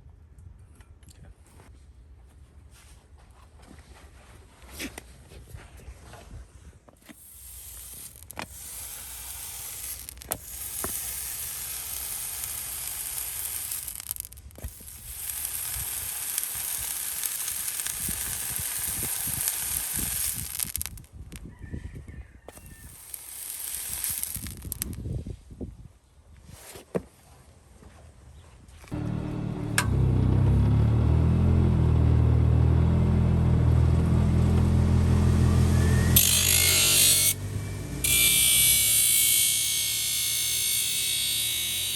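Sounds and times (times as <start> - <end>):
hot horseshoe sizzling on hoof: 7.0 - 21.1, 22.5 - 25.0, 35.1 - 41.9.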